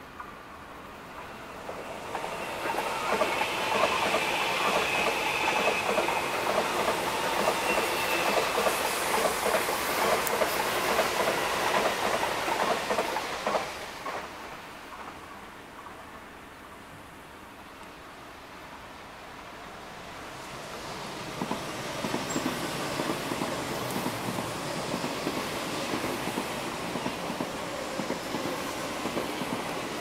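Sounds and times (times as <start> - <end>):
train wheels clacking over rail joints: 1.1 - 15.2, 21.2 - 30.0.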